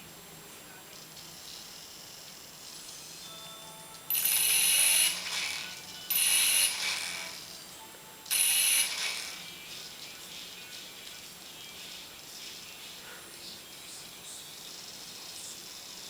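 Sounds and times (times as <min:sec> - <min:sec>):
toy helicopter motor whirring: 0:04.1 - 0:07.6, 0:08.3 - 0:09.5.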